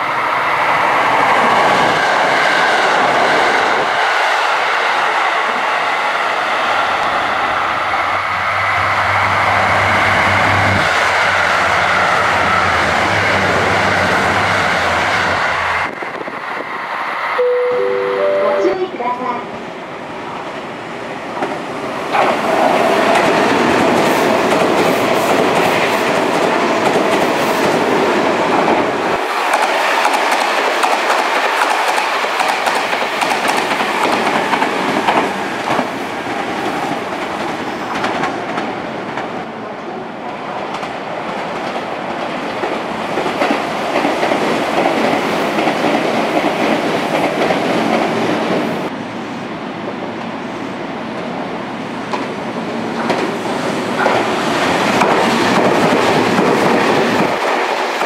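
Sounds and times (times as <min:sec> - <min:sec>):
train rushing noise: 0:00.0 - 0:58.0.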